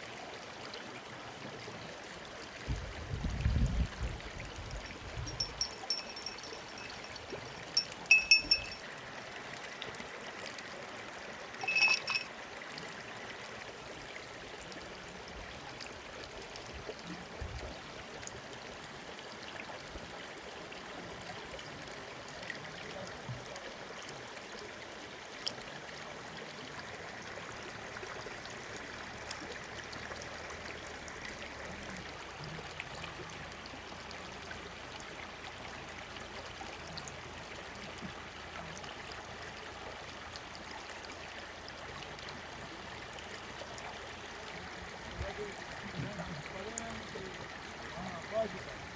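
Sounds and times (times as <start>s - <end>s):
stream water rushing: 4.1s - 22.6s, 23.2s - 48.9s
bright ringing clinks: 5.3s - 8.8s, 11.6s - 12.3s.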